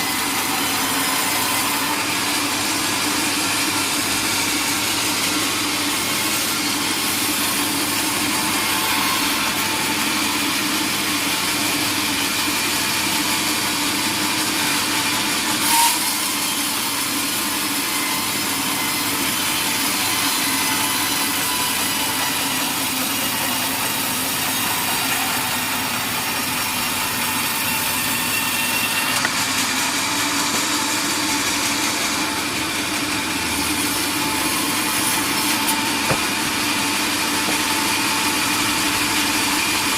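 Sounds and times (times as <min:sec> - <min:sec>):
saw cutting through log: 0:00.0 - 0:39.9
sharp knock: 0:36.0 - 0:36.4.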